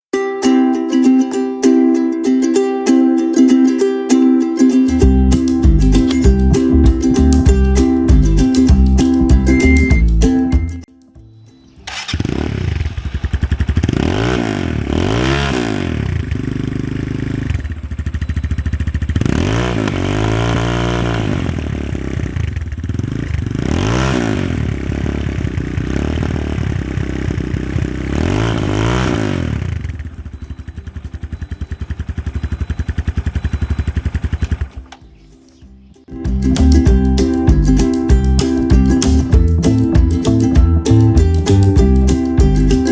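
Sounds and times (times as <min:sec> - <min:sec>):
motorcycle engine revving: 0:11.8 - 0:35.3.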